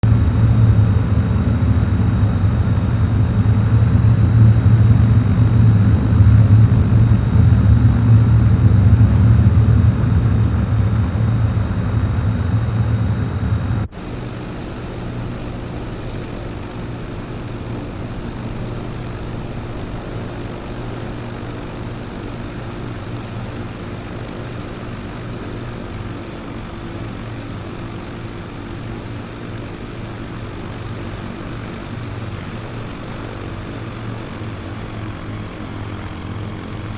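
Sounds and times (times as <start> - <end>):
propeller aircraft engine: 0.0 - 36.9.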